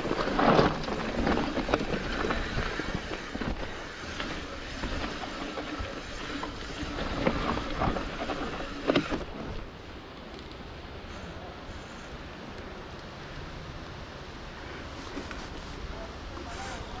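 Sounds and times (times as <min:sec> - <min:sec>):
bike tyres rushing on trail: 0:00.0 - 0:10.0
bike rattles and knocks: 0:00.0 - 0:10.8.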